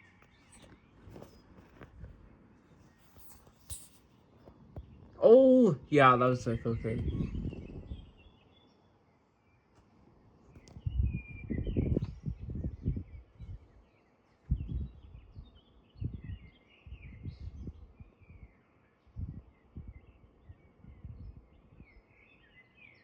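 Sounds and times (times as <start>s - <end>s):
small birds chirping: 0.0s - 23.0s
wind buffeting microphone: 6.2s - 8.3s, 10.6s - 13.8s, 14.4s - 18.5s, 19.1s - 22.0s.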